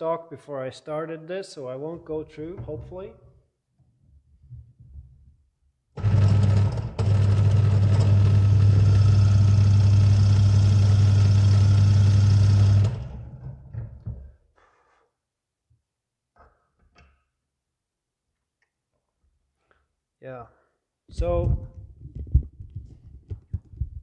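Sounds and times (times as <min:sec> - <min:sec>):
drill press drilling wood: 0:06.0 - 0:13.9.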